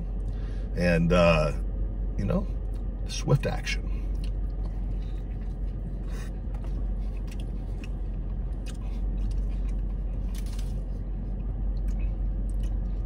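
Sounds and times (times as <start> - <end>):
steady low hum: 0.0 - 13.0
man chewing food: 4.0 - 13.0.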